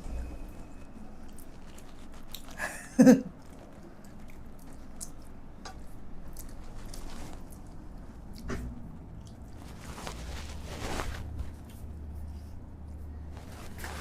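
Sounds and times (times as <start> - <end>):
chewing and biting food: 1.2 - 2.6, 3.3 - 9.9.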